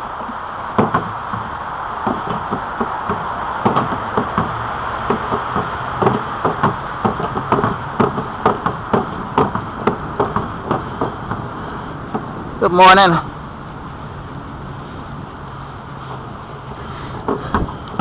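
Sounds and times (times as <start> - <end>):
tyre noise: 0.0 - 12.4
bicycle rattling and knocking: 0.8 - 12.4, 17.2 - 18.0.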